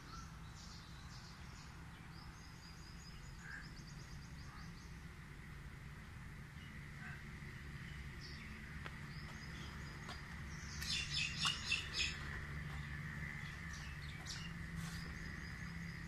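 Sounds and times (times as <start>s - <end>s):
low background hum: 0.0s - 16.0s
bird chirping: 6.6s - 16.0s.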